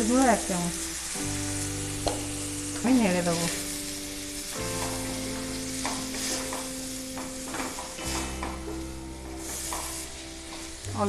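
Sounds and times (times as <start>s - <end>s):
meat sizzling in a pan: 0.0s - 11.0s
soft background music: 0.0s - 11.0s
spoon scraping a pan: 5.8s - 8.7s.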